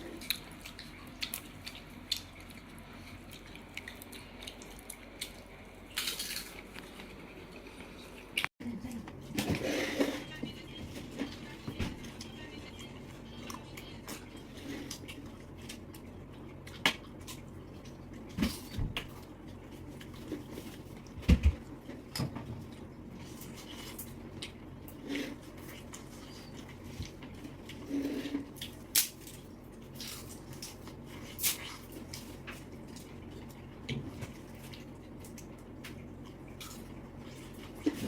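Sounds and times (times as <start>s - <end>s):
wet eating sounds: 0.0s - 10.2s.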